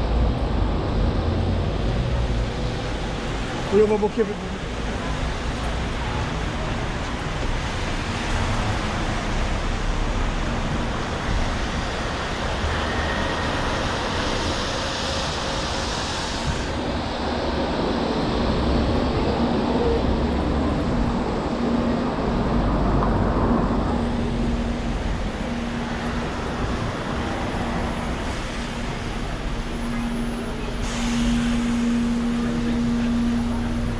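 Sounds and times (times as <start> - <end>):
traffic rumbling past: 0.0 - 33.9
high hiss: 30.7 - 33.9.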